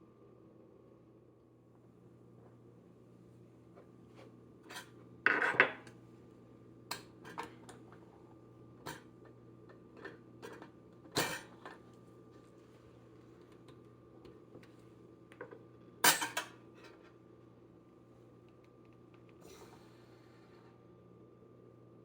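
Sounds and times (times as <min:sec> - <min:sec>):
metal and crockery clinking: 0:10.0 - 0:11.8, 0:16.0 - 0:16.6.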